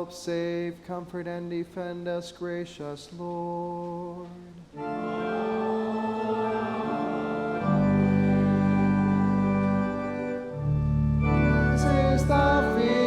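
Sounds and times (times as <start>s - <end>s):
church organ playing chords: 4.8s - 13.0s.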